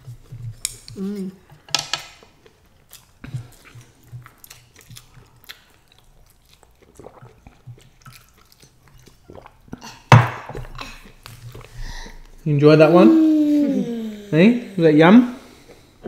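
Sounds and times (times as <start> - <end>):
people chewing: 2.2 - 12.5, 15.3 - 16.0.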